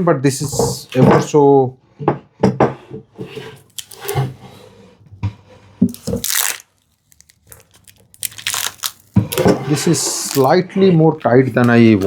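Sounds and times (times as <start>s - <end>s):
wooden drawer scraping and knocking: 9.2s - 12.0s.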